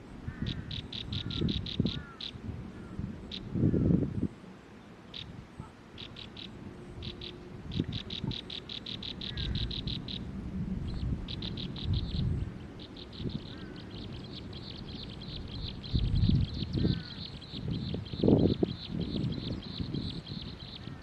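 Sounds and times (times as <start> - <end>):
small bird chirping rapidly: 0.4 - 2.4, 5.1 - 5.3, 6.0 - 10.3, 10.9 - 21.0.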